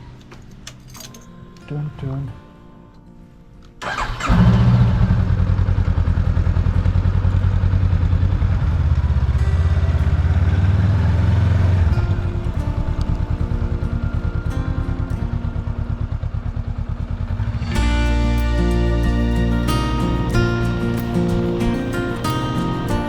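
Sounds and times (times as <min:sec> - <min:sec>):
small motorbike engine running: 0:04.2 - 0:19.6.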